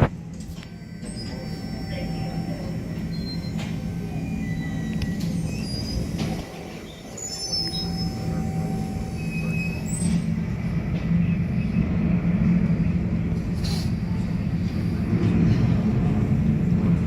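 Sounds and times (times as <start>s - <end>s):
high squeals: 0.8s - 10.4s.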